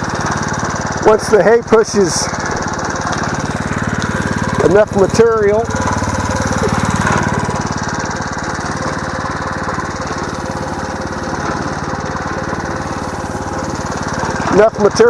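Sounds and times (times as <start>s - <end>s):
small engine running under load: 0.0s - 15.0s.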